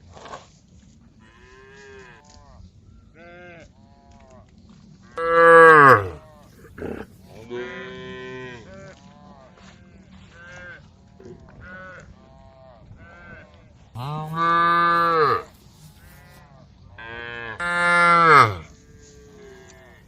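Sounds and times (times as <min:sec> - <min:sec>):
cows mooing: 0:05.2 - 0:08.6, 0:14.0 - 0:16.4, 0:17.1 - 0:18.7.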